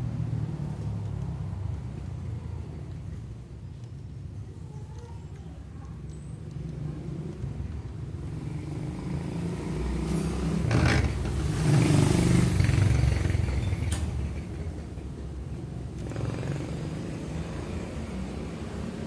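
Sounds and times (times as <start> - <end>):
motorcycle engine running: 10.5 - 19.0.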